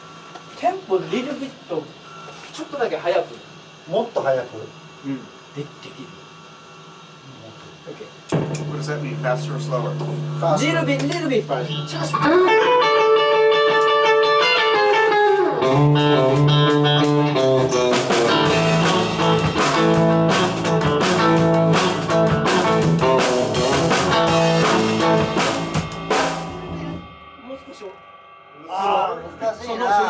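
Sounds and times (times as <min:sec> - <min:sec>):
electric guitar playing: 0:08.3 - 0:28.4.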